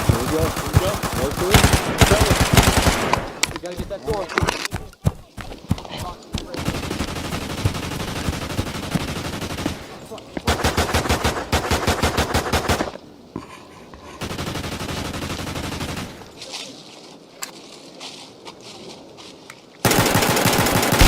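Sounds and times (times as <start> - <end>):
automatic gunfire: 0.0 - 4.2, 6.4 - 13.0, 14.2 - 16.2, 19.9 - 21.0.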